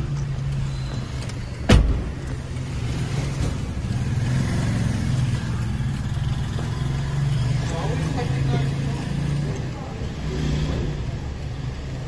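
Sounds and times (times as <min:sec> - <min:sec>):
car door shutting: 0:01.6 - 0:02.2.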